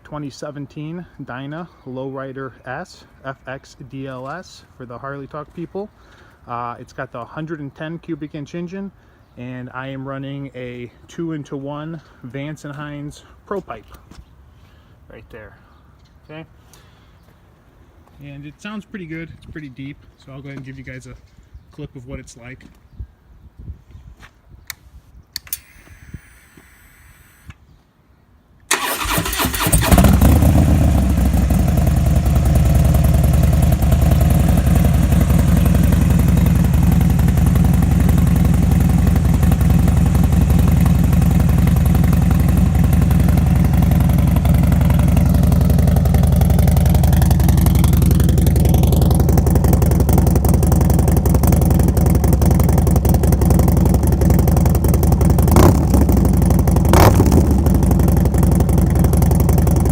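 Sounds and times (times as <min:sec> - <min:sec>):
engine revving bursts: 0:28.7 - 0:48.0, 0:55.4 - 0:58.3
motorcycle engine idling: 0:28.7 - 0:59.9.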